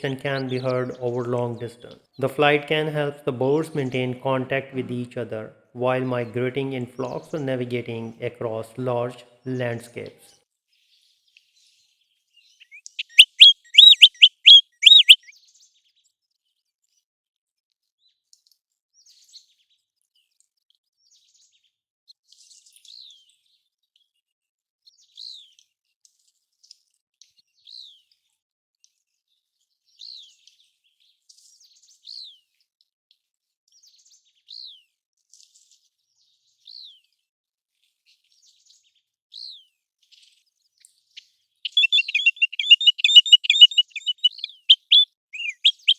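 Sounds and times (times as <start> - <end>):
plover whistled calls: 12.8 - 15.3, 41.7 - 45.9.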